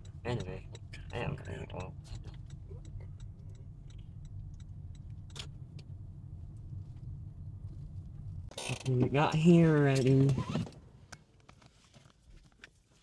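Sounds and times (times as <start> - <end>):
road and engine rumble: 0.0 - 13.0.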